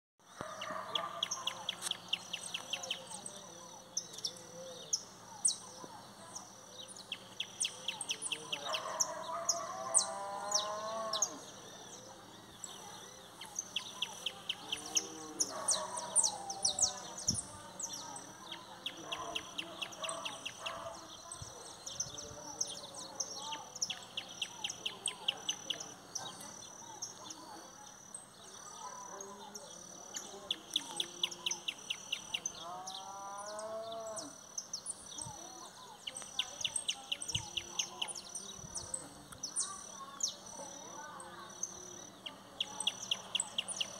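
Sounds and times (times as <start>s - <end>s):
low wavering bird calls: 0.3s - 27.7s
birds chirping and singing: 0.3s - 43.9s.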